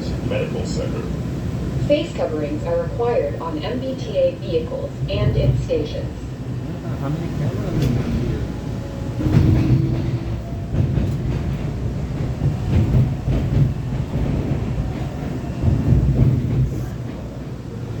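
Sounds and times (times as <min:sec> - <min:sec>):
train rumbling on rails: 0:00.0 - 0:18.0
clicks and clacks: 0:07.7 - 0:08.2, 0:09.2 - 0:17.2.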